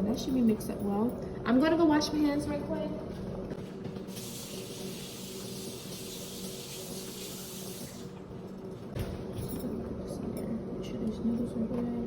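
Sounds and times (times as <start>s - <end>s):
faucet running into sink: 4.1s - 8.1s.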